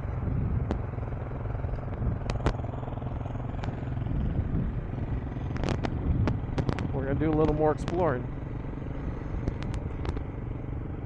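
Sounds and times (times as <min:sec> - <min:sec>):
motorcycle engine running: 0:00.0 - 0:11.0
sharp clicks: 0:01.8 - 0:02.7, 0:05.5 - 0:08.0, 0:09.4 - 0:10.3.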